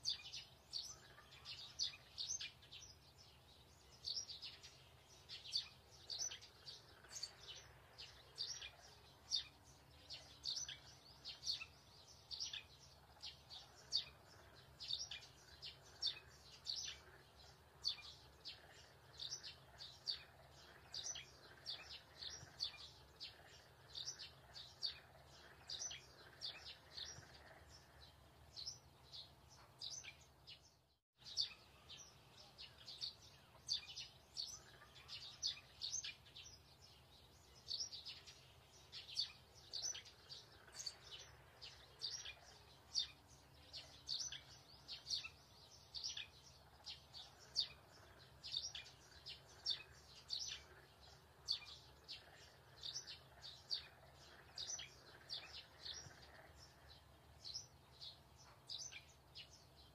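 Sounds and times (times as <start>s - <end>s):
small bird chirping: 0.0s - 59.9s.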